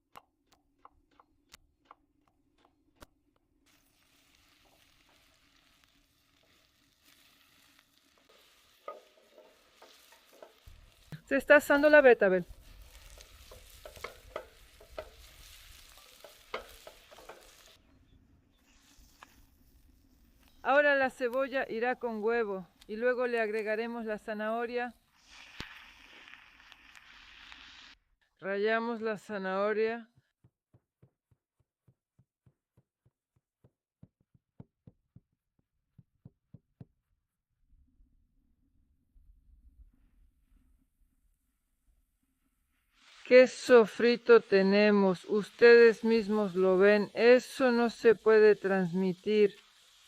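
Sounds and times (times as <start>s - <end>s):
food sizzling in a pan: 3.7s - 17.8s, 18.5s - 28.0s, 42.9s - 50.0s
carrot grating strokes: 12.5s - 17.8s.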